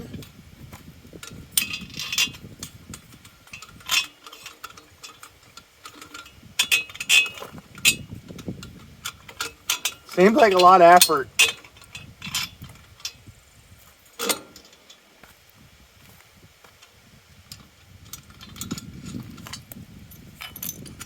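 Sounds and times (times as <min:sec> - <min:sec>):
metal parts clicking and clinking: 0:01.2 - 0:13.2, 0:17.5 - 0:21.0.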